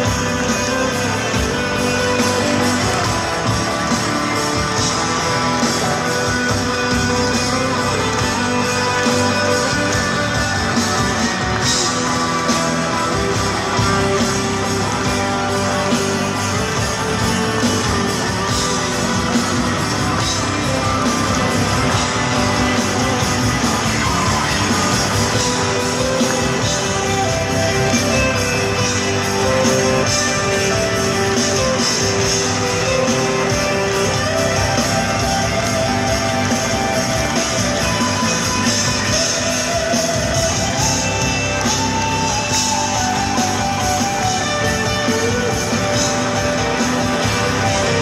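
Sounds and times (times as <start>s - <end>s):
electric guitar lead: 0.0s - 48.0s
live rock band playing: 0.0s - 48.0s.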